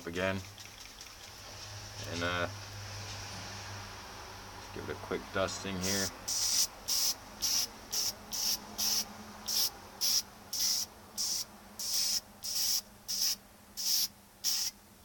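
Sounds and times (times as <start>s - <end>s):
aerosol spray hissing bursts: 5.8s - 14.8s.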